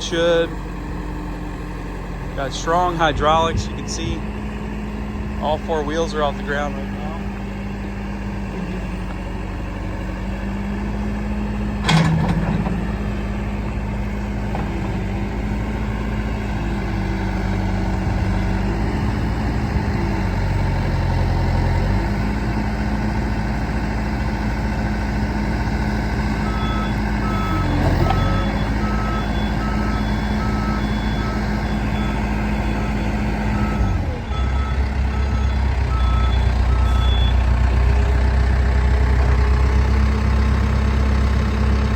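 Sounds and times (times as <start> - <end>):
backhoe diesel engine running: 0.0 - 41.9
reversing alarm beeping: 26.4 - 37.6.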